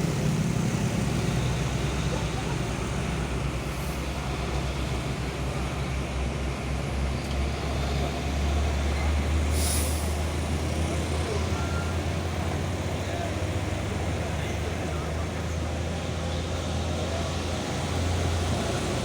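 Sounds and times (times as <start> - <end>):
diesel engine rumbling: 0.0 - 19.0
air hiss: 9.5 - 10.2.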